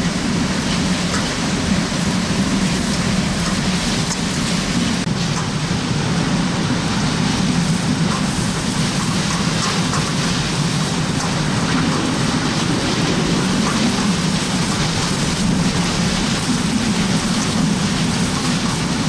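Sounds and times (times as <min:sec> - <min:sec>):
heavy rain: 0:00.0 - 0:19.0
strong wind rushing: 0:00.0 - 0:19.0
low rumble: 0:10.3 - 0:17.9.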